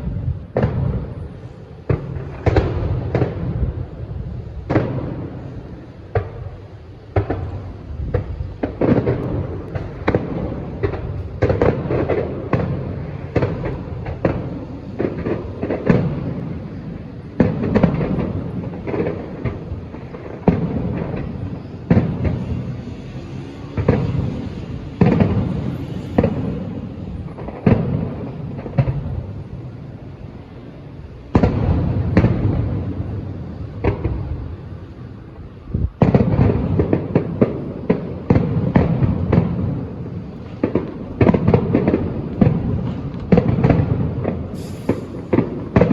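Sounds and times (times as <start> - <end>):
fireworks booming and cracking: 0.0 - 45.9.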